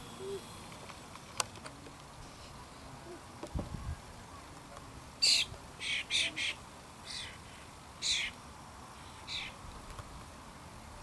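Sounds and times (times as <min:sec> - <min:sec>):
bird harsh calls: 0:05.2 - 0:08.4, 0:09.0 - 0:09.6.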